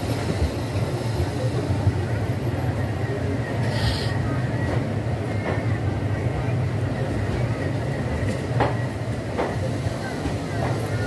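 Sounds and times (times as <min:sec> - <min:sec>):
train coach rumbling: 0:00.0 - 0:11.0
short hiss: 0:03.7 - 0:04.2.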